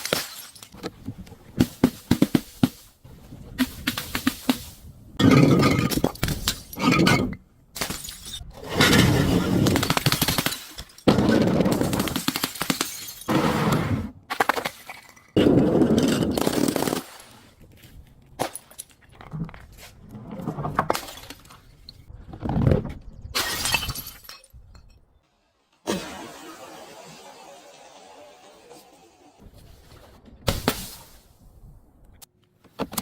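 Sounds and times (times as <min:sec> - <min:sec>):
glass bottles shattering: 0:00.0 - 0:00.8, 0:07.8 - 0:13.3, 0:23.4 - 0:25.0.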